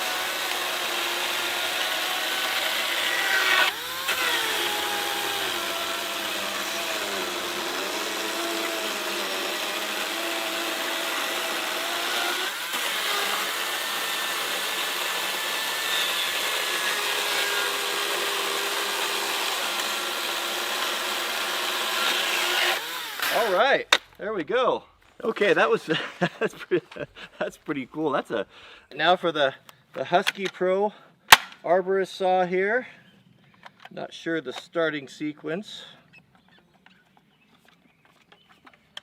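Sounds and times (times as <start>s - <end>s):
electric chainsaw cutting log: 0.0s - 23.6s.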